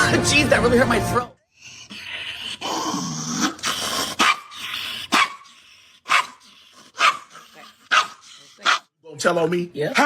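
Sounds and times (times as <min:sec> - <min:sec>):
dog barking: 0:04.2 - 0:08.9.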